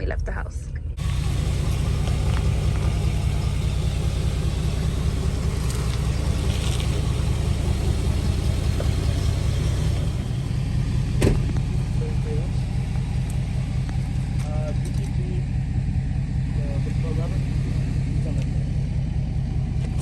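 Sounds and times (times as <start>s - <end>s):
car interior rumble: 0.0s - 20.0s.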